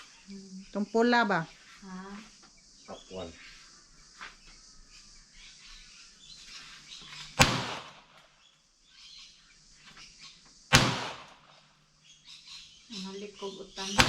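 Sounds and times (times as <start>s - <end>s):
gunshots: 7.4s - 8.1s, 10.7s - 11.5s.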